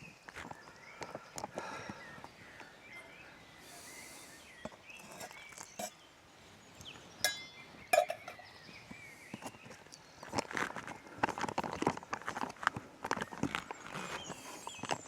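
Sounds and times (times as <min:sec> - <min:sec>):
utensil clinks: 0:07.3 - 0:08.4.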